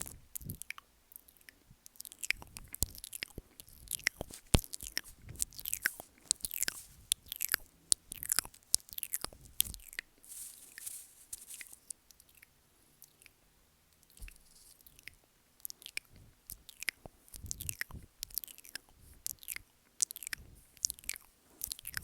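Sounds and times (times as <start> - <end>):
wet mouth sounds: 0.0 - 10.1, 14.1 - 22.0
soft breathy hiss: 0.0 - 13.1.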